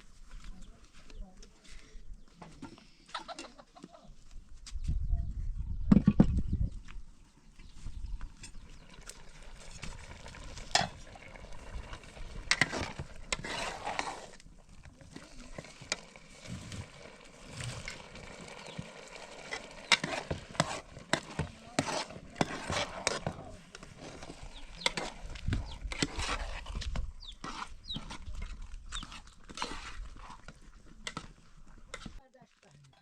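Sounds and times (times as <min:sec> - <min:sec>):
utensils scraping cookware: 0:12.4 - 0:14.4, 0:17.6 - 0:32.2.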